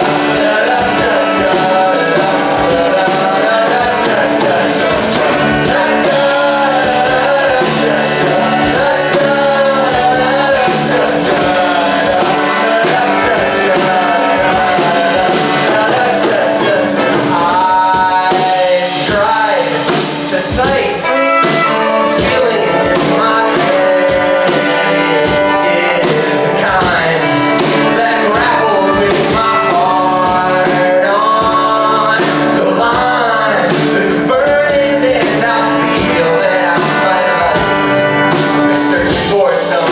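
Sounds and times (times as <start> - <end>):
person singing: 0.0 - 39.9
rock band playing: 0.0 - 39.9.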